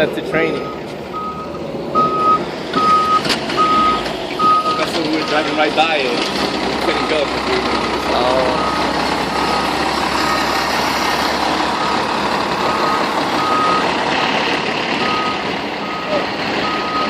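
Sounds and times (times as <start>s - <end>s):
truck engine running: 0.0s - 17.0s
reverse alarm beeping: 0.5s - 5.6s, 8.4s - 10.7s, 11.6s - 14.3s, 15.0s - 17.0s.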